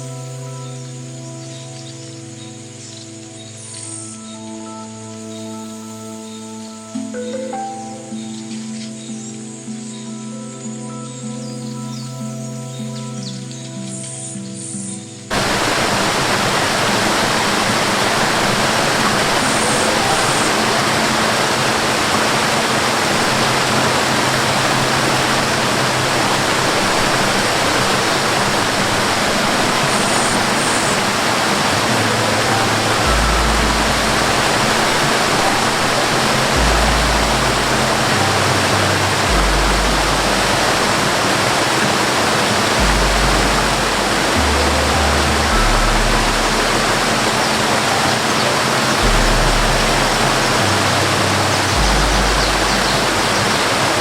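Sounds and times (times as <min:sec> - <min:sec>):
low held music notes: 0:00.0 - 0:54.0
waterfall rushing: 0:05.3 - 0:10.0, 0:14.6 - 0:54.0.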